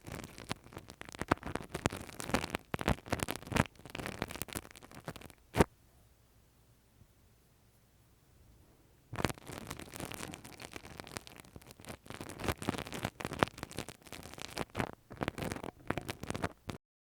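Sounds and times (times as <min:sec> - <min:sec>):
scratching and rubbing on microphone: 0:00.0 - 0:05.7, 0:09.1 - 0:16.8.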